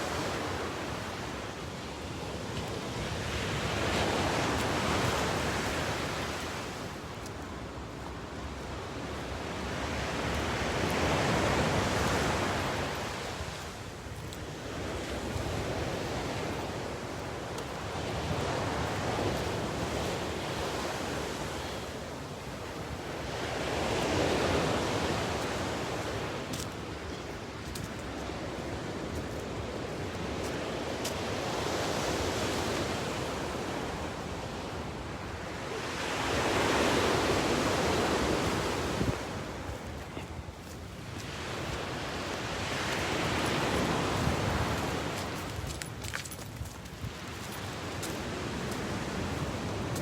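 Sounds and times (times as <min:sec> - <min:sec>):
ocean waves breaking: 0:28.2 - 0:46.3.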